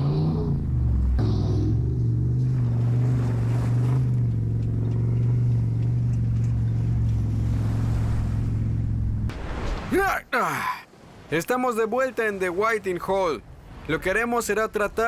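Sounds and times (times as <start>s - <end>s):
truck engine droning: 0.0s - 9.3s.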